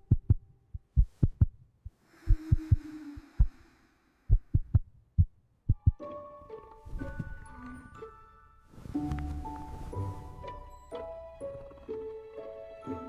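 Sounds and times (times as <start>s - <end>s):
soft low thumps: 0.0s - 3.6s, 4.3s - 6.0s
music: 5.8s - 13.0s.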